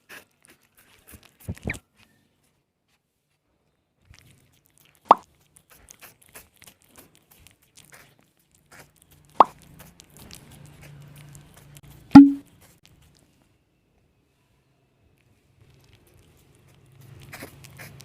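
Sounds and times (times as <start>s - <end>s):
sharp plop-like pops: 12.2s - 12.4s
short ringing tone: 12.2s - 12.4s.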